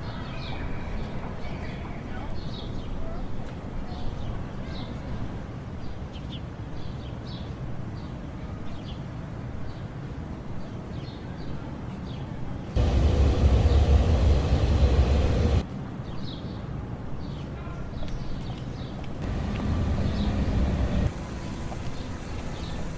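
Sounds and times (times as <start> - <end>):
loud rumbling noise: 12.8 - 15.6, 19.2 - 21.5
steady low rumble: 12.8 - 15.6, 19.2 - 21.2
bird chirps: 19.2 - 21.1.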